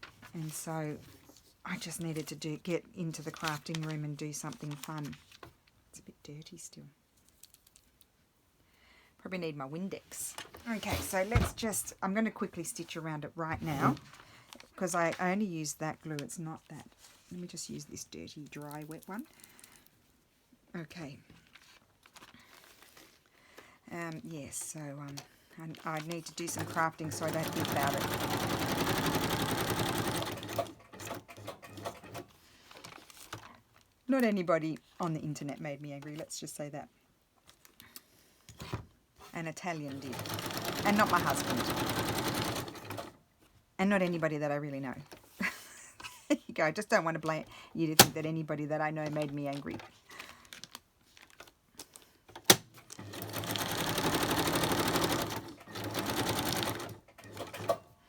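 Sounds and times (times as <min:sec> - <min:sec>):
sewing machine stitching: 0:26.3 - 0:32.4, 0:39.9 - 0:43.2, 0:52.4 - 0:57.8.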